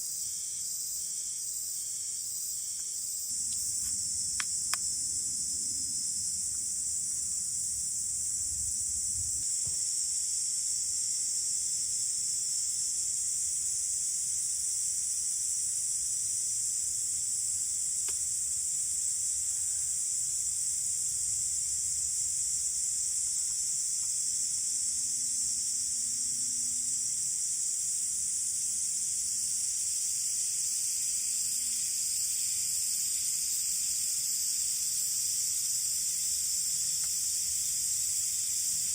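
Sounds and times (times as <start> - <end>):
insects buzzing: 0.0 - 38.9
faint click: 18.0 - 18.2.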